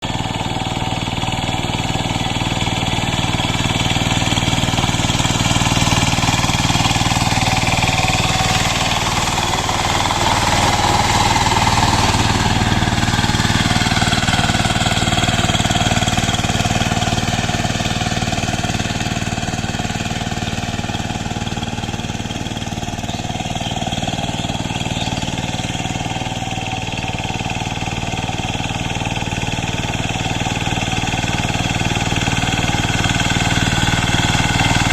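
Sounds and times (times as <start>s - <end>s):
power tiller diesel engine chugging: 0.0s - 34.9s.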